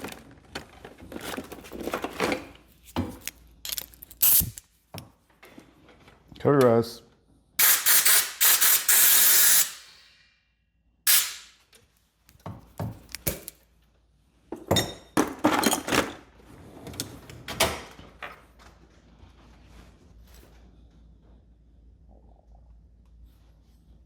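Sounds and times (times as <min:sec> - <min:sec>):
pressurised spray hissing: 0:07.6 - 0:09.9.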